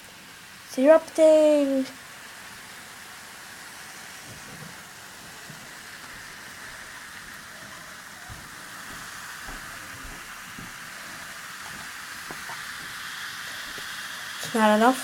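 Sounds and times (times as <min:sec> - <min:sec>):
bubbles fizzing: 0:03.9 - 0:15.0.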